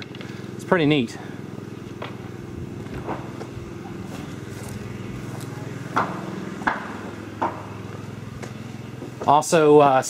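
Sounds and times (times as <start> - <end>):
low mechanical hum: 0.0 - 10.0
sharp knocks: 5.9 - 7.8.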